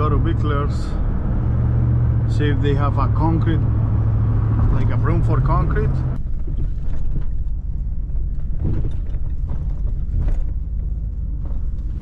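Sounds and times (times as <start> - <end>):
truck engine rumble: 0.0 - 12.0
cab creaks and knocks: 6.2 - 12.0.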